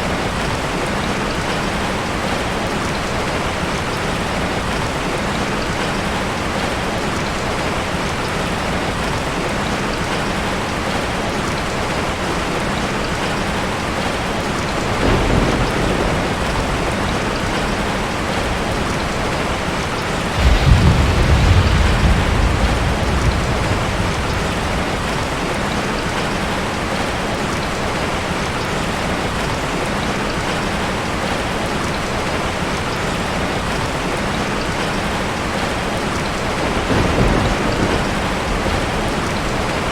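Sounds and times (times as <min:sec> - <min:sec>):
steady rain falling: 0:00.0 - 0:39.9
thunder rumbling: 0:14.6 - 0:27.9, 0:35.0 - 0:39.9
thunder clap: 0:14.8 - 0:27.4, 0:36.2 - 0:39.9.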